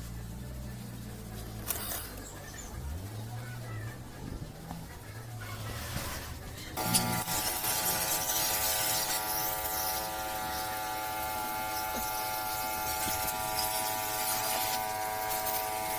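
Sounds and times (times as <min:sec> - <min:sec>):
small electric motor whining: 0:06.8 - 0:15.9.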